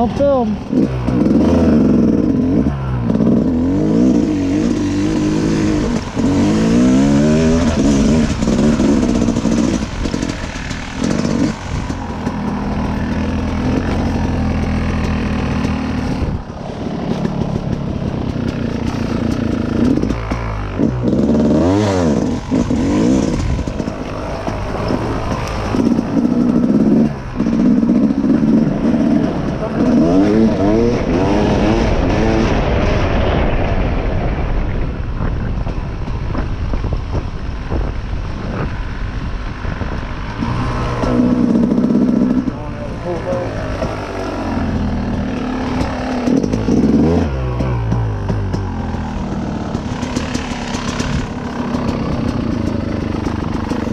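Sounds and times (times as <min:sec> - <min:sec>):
dirt bike engine revving: 0:00.0 - 0:33.8, 0:39.5 - 0:53.9.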